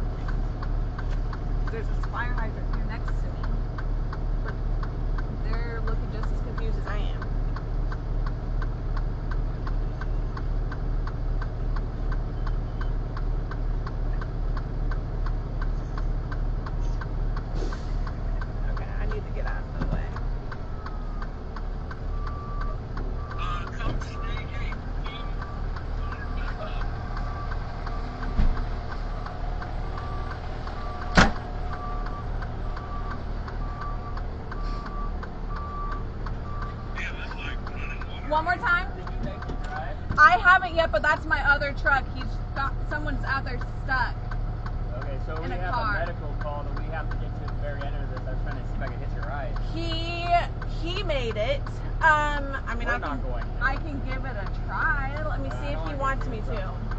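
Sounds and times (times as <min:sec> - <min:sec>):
truck engine idling: 0:00.0 - 0:56.9
flasher relay ticking: 0:24.6 - 0:56.9.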